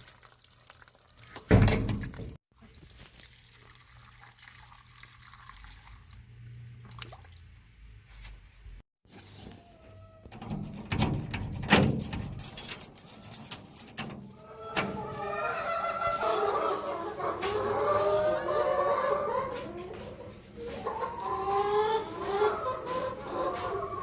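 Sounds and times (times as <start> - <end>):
clattering and rustling: 10.3 - 15.2
chickens clucking: 14.5 - 24.0.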